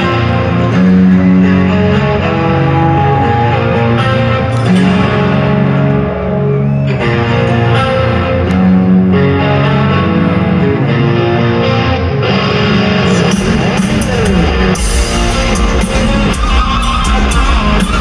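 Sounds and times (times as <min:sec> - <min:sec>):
distorted electric guitar: 0:00.0 - 0:18.0
bass and drums: 0:13.1 - 0:18.0.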